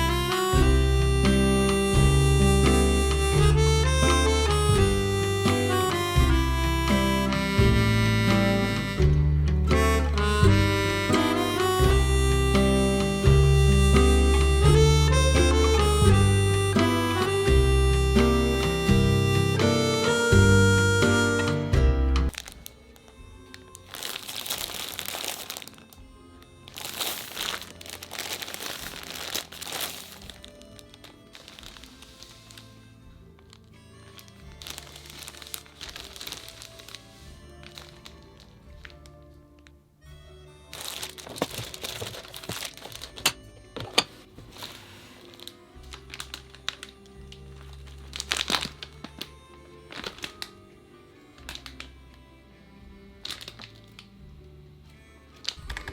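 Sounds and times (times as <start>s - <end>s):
faint background music: 0.0s - 55.9s
packaging crinkling: 22.3s - 26.0s, 26.6s - 32.8s, 33.4s - 39.1s, 40.7s - 50.6s, 51.4s - 51.9s, 53.2s - 54.1s.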